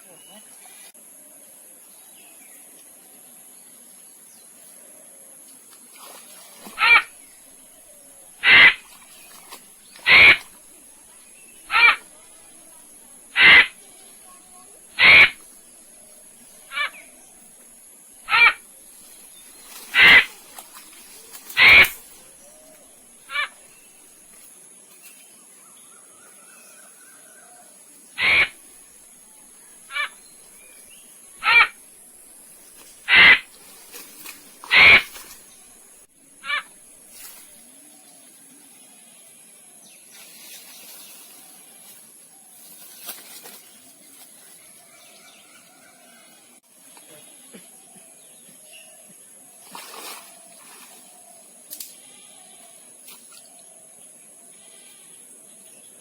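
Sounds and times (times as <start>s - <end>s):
animal giving harsh calls: 6.8s - 7.1s, 8.4s - 8.8s, 10.0s - 10.4s, 11.7s - 12.1s, 13.4s - 13.8s, 15.0s - 15.4s, 16.7s - 17.0s, 18.3s - 18.6s, 19.9s - 20.3s, 21.6s - 22.0s, 23.3s - 23.5s, 28.2s - 28.6s, 29.9s - 30.2s, 31.4s - 31.8s, 33.1s - 33.4s, 34.7s - 35.1s, 36.4s - 36.7s.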